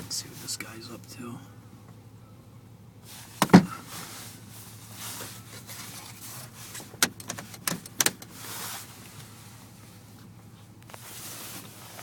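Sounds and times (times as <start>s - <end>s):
sharp clicks and knocks: 6.8s - 8.3s.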